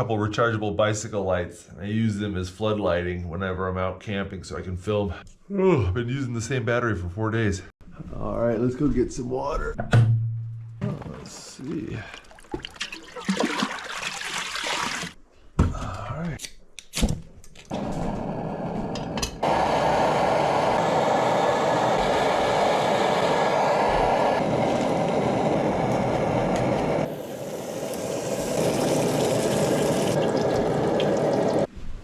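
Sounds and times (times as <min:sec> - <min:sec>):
water filling a container: 0:11.5 - 0:15.2, 0:27.1 - 0:31.7.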